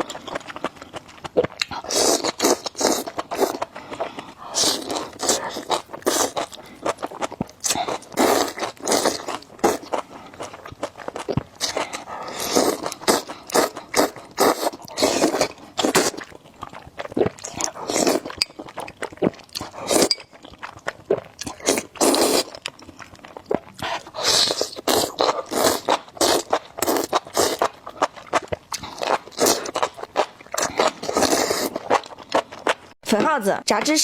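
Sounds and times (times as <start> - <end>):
wet chewing and crunching: 0.0 - 33.3.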